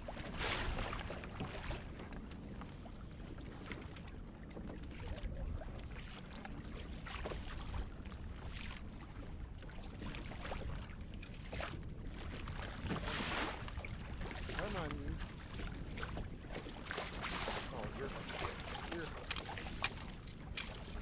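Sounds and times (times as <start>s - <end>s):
water splashing against a kayak: 0.0s - 21.0s.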